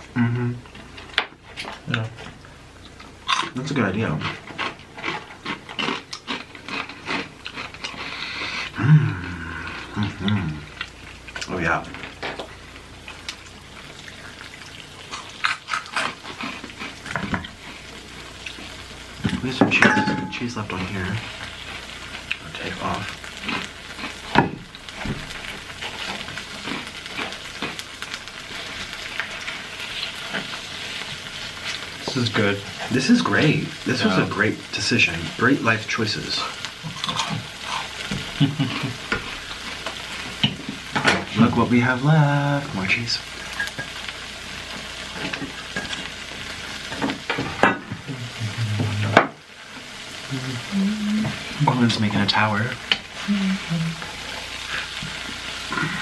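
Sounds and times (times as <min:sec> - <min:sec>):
cheese sizzling and crackling: 0:00.0 - 0:56.0.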